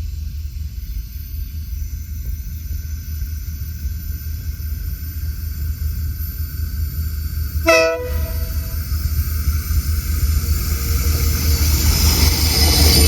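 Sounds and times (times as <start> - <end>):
locomotive low rumble: 0.0 - 13.0
locomotive horn blast: 7.6 - 8.8.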